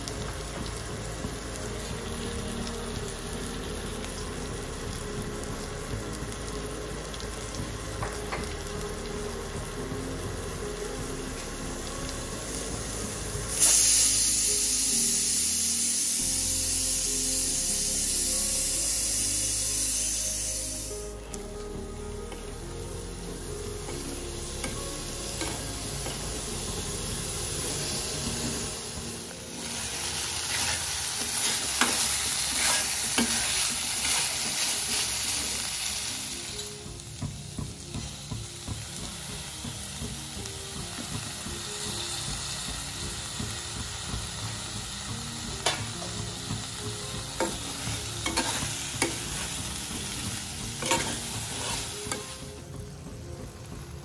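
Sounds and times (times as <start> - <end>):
chicken sizzling in a frying pan: 0.0 - 54.0
spatula scraping a pan: 30.4 - 35.1, 47.4 - 52.3.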